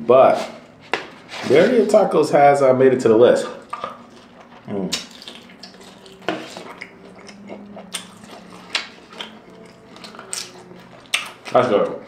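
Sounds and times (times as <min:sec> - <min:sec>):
chewing and wet mouth sounds: 0:03.3 - 0:12.0.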